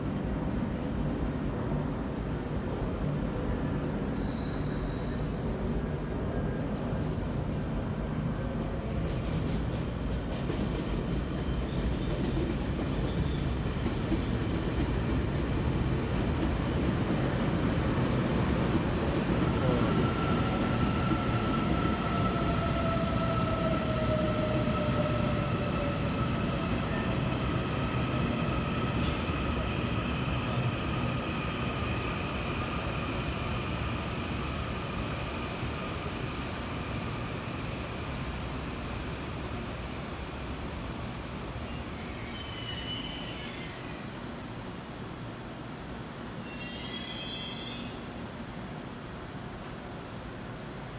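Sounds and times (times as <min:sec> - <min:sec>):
train brake whine: 0:04.1 - 0:05.6, 0:41.7 - 0:43.9, 0:46.2 - 0:48.6.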